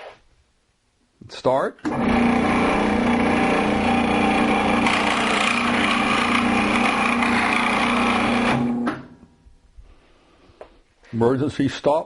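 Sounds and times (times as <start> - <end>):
scroll saw cutting wood: 1.9 - 9.0.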